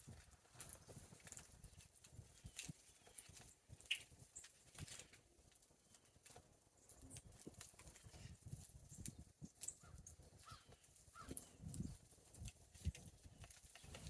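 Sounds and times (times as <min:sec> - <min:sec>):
birds pecking ticks and taps: 0:00.1 - 0:14.0
faint bird chirp: 0:08.9 - 0:12.0.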